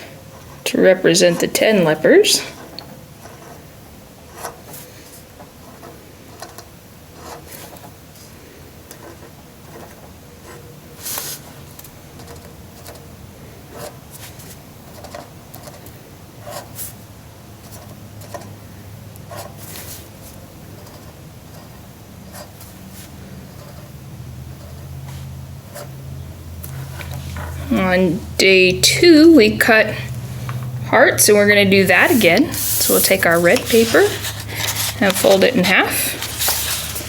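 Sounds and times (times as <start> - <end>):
pen scratching on paper: 3.2 - 3.7, 4.3 - 4.8, 7.2 - 7.8, 31.8 - 37.0
paper rustling: 31.8 - 37.0.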